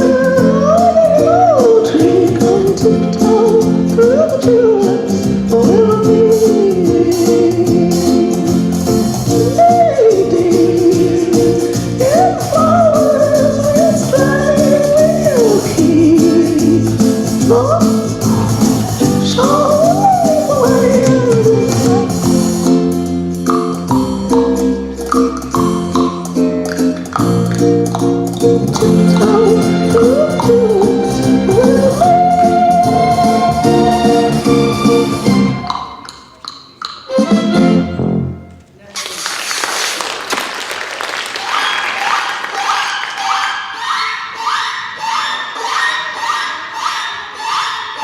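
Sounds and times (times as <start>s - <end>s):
high voice singing: 0.0s - 8.7s, 9.3s - 22.4s, 28.7s - 34.5s
sung melody: 0.0s - 36.1s
instrumental accompaniment: 0.0s - 38.8s.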